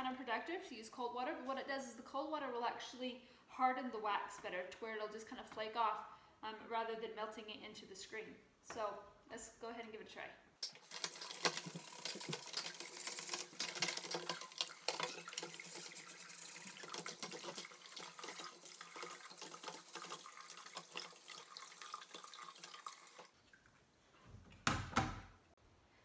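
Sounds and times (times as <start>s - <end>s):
faucet water running: 10.6s - 23.6s.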